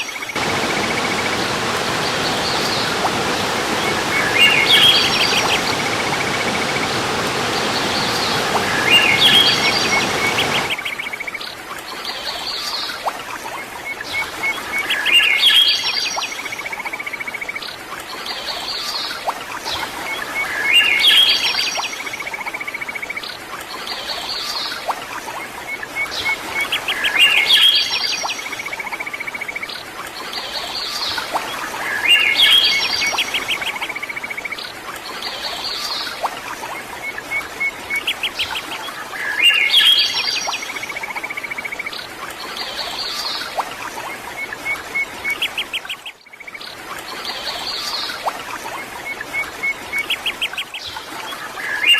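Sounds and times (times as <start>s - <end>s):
songbirds chirping and trilling: 0.0s - 13.1s
steady background hiss: 0.3s - 10.8s.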